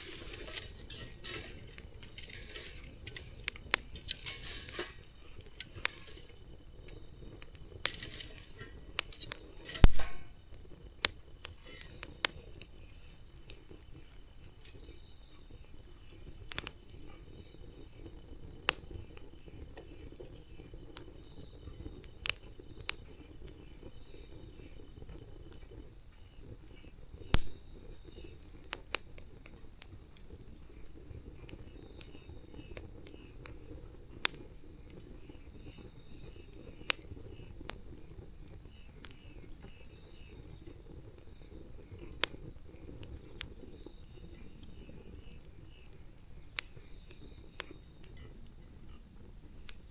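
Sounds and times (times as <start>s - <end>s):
loud fire pops: 0.0s - 15.4s, 27.2s - 30.7s
campfire crackling: 0.0s - 49.9s.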